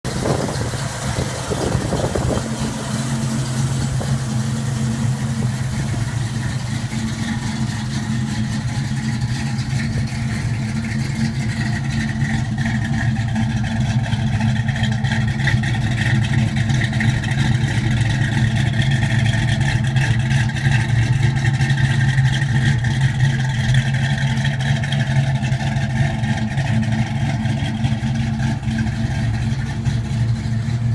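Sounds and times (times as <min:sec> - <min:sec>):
car engine idling: 0:00.0 - 0:30.9.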